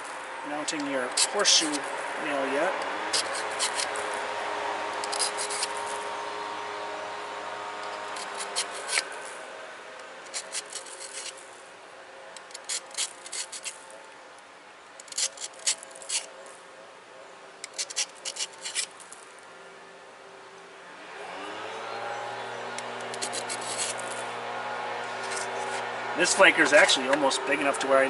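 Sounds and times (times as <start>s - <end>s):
metal tip scraping on abrasive: 0.0s - 4.3s, 4.9s - 6.3s, 7.8s - 9.4s, 10.2s - 11.5s, 12.4s - 13.9s, 15.0s - 16.3s, 17.6s - 19.2s, 22.6s - 28.0s.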